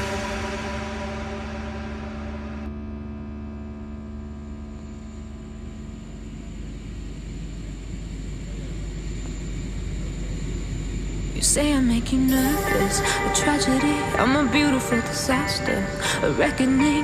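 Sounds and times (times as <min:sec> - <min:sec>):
background music: 0:00.0 - 0:02.7, 0:12.3 - 0:17.0
airliner cabin rumble and hiss: 0:06.1 - 0:17.0.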